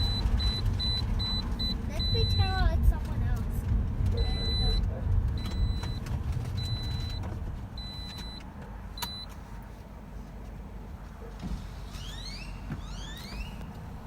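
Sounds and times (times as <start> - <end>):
seatbelt warning chime beeps: 0.0 - 2.6, 4.2 - 6.0, 6.6 - 9.3
car low rumble: 0.0 - 14.0.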